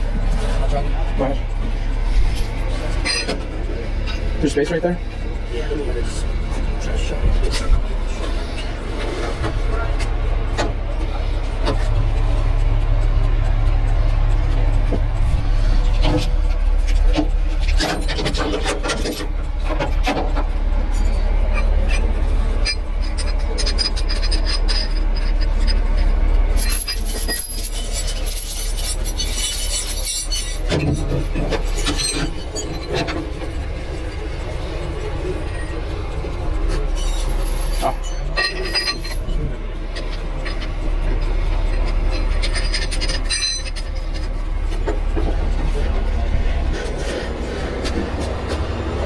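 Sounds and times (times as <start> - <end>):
metallic clinks and scrapes: 0.0 - 10.1, 13.6 - 49.0
low rumble: 0.0 - 49.0
truck diesel engine running: 0.0 - 49.0
metallic chain clinks: 20.9 - 33.6, 36.9 - 44.5.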